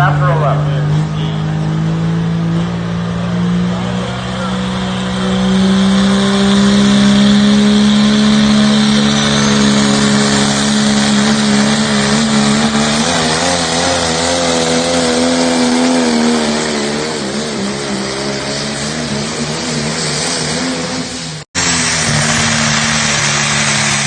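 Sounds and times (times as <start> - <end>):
tractor engine at high revs: 0.0 - 24.0.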